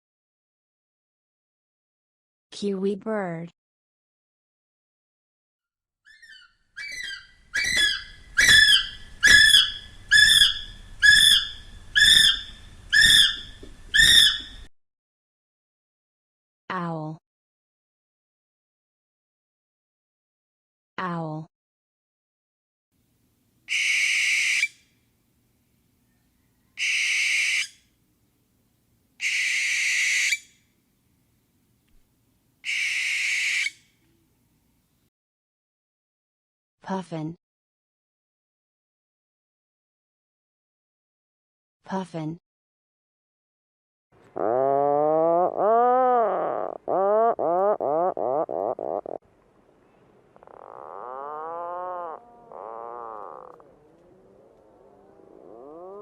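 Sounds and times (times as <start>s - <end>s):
owl screeching: 6.1s - 14.6s, 23.7s - 24.8s, 26.8s - 27.8s, 29.2s - 30.5s, 32.6s - 33.8s, 44.4s - 49.2s, 50.4s - 56.0s
puffin calling: 6.2s - 14.5s, 29.2s - 30.4s, 32.7s - 33.7s, 44.4s - 49.2s, 50.4s - 56.0s.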